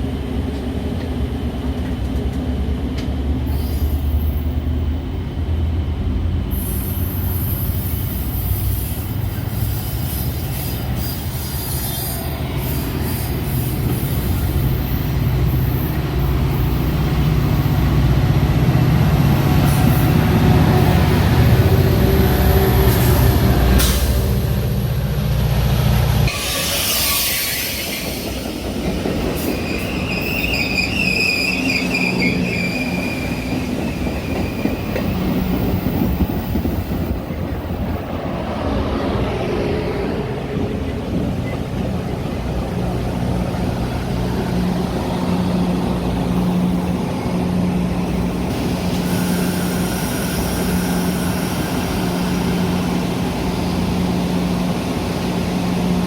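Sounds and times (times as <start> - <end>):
low train drone: 0.0 - 56.0
train hiss: 3.4 - 4.8, 6.4 - 56.0
steel wheels squealing on rails: 3.4 - 4.9, 6.5 - 18.5, 19.2 - 24.7, 26.2 - 56.0.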